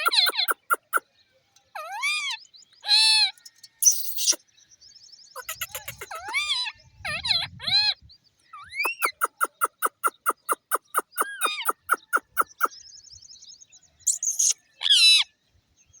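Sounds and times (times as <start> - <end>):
parakeet squawks: 0.0 - 1.0, 5.4 - 8.0, 8.6 - 12.7
parakeets calling: 0.0 - 1.0, 1.8 - 4.4, 5.4 - 8.0, 8.6 - 12.8, 14.1 - 15.2.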